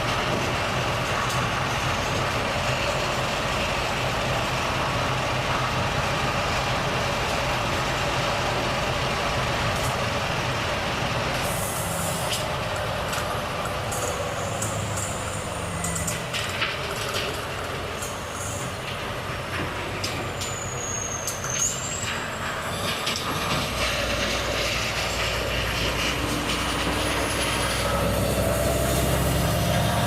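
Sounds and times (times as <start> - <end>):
air brakes hissing and clicking: 11.3 - 30.0
diesel truck engine pulling away: 24.4 - 30.0.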